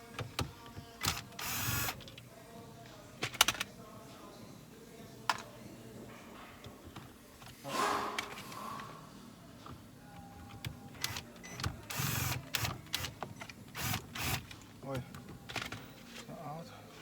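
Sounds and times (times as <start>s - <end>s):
power driver whirring: 1.2s - 2.0s
plastic parts clicking and rattling: 3.2s - 3.7s, 12.5s - 15.9s.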